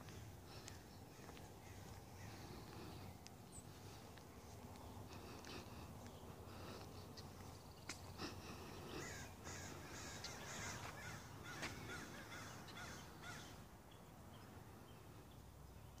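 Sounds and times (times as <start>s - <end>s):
bird harsh call: 8.3s - 13.7s.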